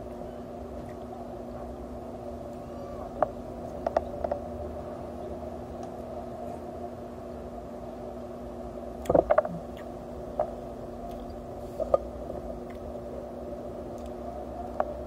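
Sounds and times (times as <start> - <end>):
steady background hum: 0.0 - 15.0
person chewing with wet smacks: 9.0 - 12.9, 13.9 - 14.2.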